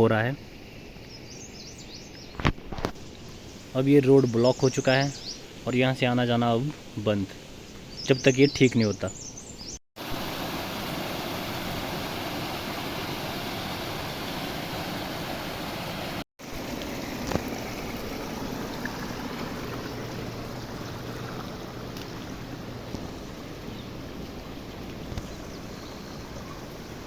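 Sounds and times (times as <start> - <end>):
flood water rushing: 10.0 - 27.0.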